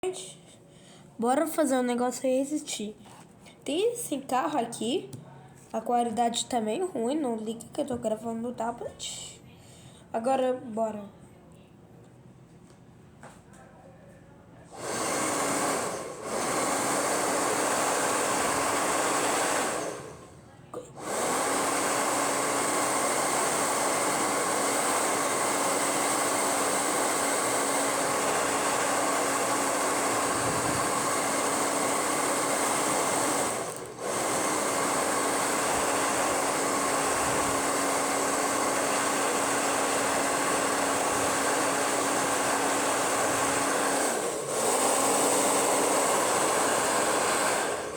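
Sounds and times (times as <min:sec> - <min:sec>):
hair dryer blowing: 0:14.7 - 0:20.4, 0:21.0 - 0:47.9.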